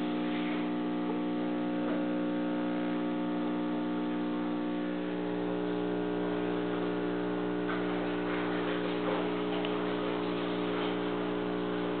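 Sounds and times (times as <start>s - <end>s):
aquarium equipment humming: 0.0s - 12.0s.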